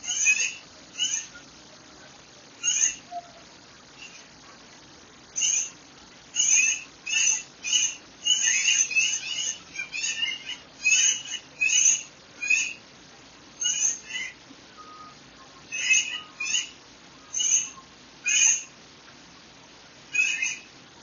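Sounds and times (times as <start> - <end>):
songbird singing bright notes: 5.4 - 12.8.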